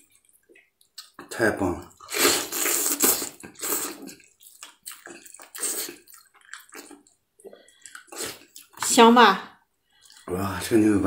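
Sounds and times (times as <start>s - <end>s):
wet chewing and lip-smacking: 0.0s - 1.3s, 1.9s - 9.0s, 9.9s - 10.3s.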